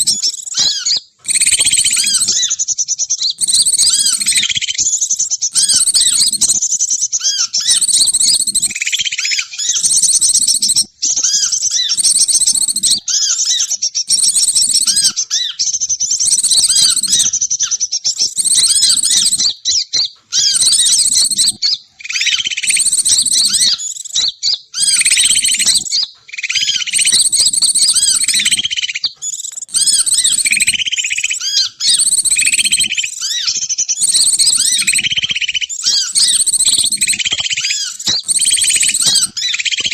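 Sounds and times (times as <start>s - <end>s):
high chirping bird calls: 0.0s - 39.9s.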